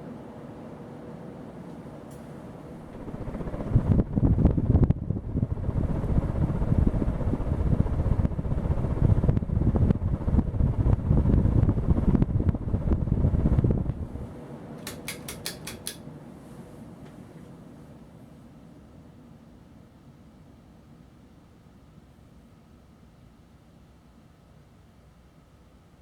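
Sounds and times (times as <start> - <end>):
fan airflow buffeting microphone: 0.0 - 19.3
sharp clicks: 14.8 - 16.0.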